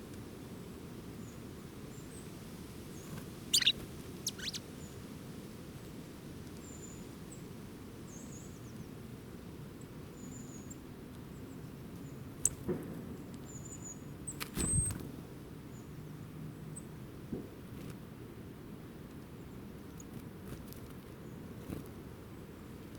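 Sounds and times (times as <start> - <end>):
low outdoor background: 0.0 - 22.9
small birds chirping: 2.9 - 5.0, 10.2 - 12.7.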